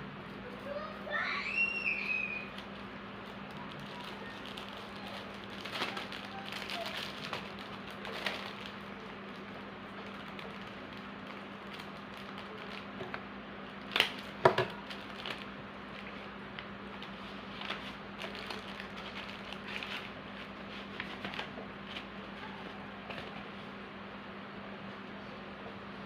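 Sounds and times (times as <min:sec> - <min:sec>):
low electrical hum: 0:00.0 - 0:26.0
clicks and rustles of packing: 0:03.5 - 0:08.8.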